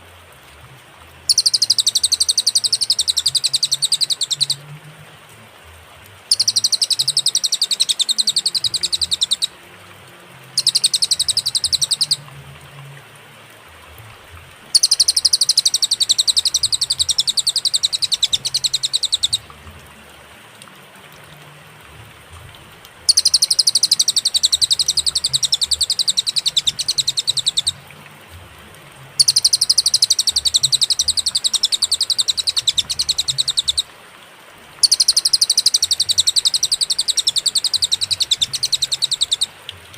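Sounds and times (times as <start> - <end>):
songbird high trill: 1.3 - 4.6, 6.3 - 9.6, 10.5 - 12.2, 14.7 - 19.5, 23.1 - 27.8, 29.2 - 33.9, 34.8 - 39.6.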